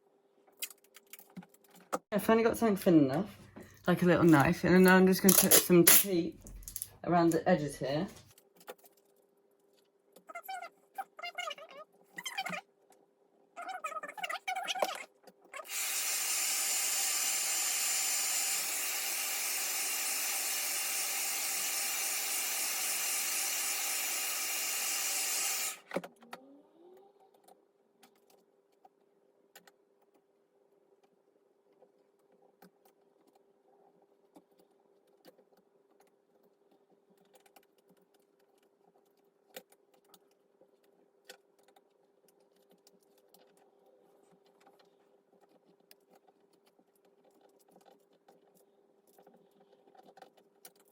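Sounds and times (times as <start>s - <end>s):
hot-air blower hissing: 15.6s - 25.8s.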